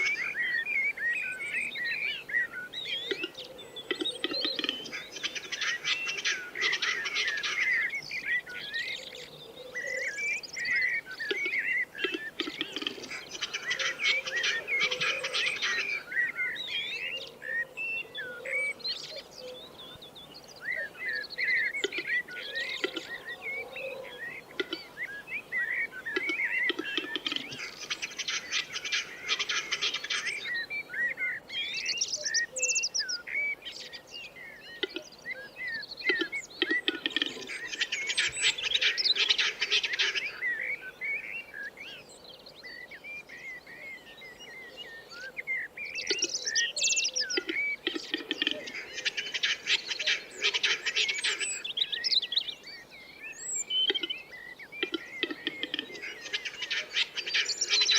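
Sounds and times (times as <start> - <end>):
wild birds chirping: 0.0 - 57.9.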